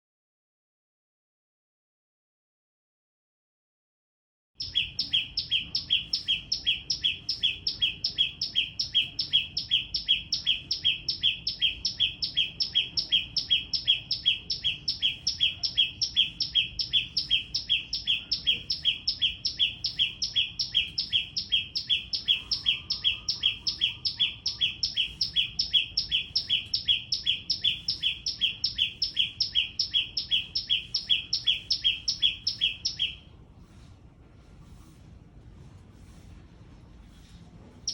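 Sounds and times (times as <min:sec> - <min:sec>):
small bird calling: 0:04.6 - 0:33.3.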